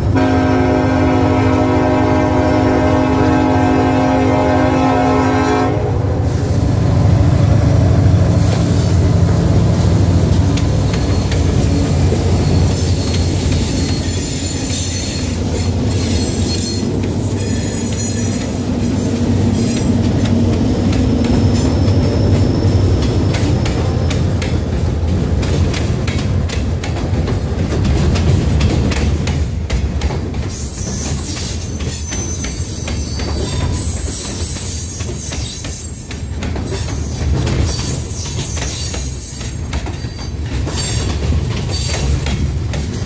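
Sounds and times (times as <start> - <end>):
train horn: 0.0 - 6.6
locomotive engines rumbling: 0.0 - 43.0
high wheel squeal: 6.2 - 20.1, 21.4 - 23.7, 30.5 - 41.1
wheels clicking over rail joints: 8.3 - 43.0.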